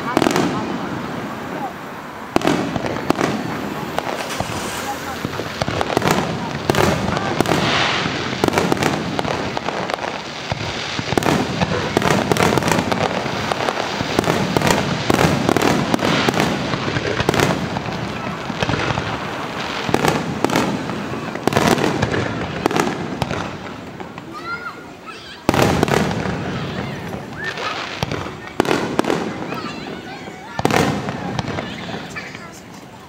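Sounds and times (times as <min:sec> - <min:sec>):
firework shells bursting: 0:02.3 - 0:24.3.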